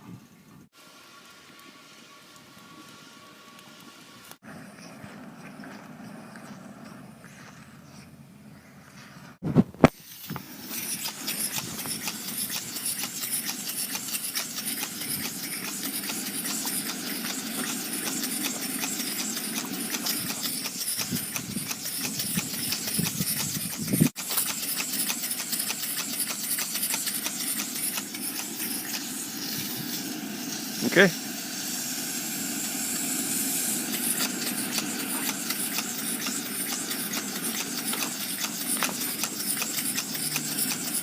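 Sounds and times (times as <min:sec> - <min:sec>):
steam hissing: 0:09.9 - 0:41.0
steam engine chuffing: 0:10.4 - 0:41.0.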